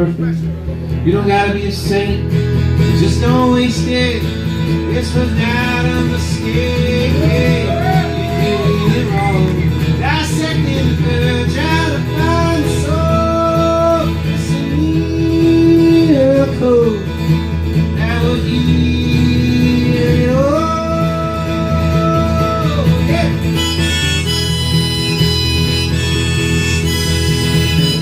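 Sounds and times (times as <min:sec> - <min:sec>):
acoustic guitar: 0:00.0 - 0:28.0
harmonica notes: 0:20.8 - 0:28.0.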